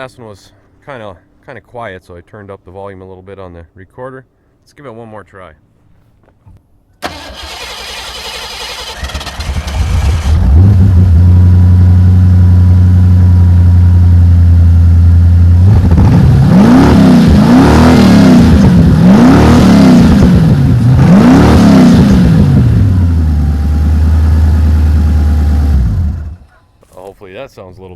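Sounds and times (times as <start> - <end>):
starter cranking engine: 7.0 - 10.5
car engine idling and revving: 7.1 - 26.6.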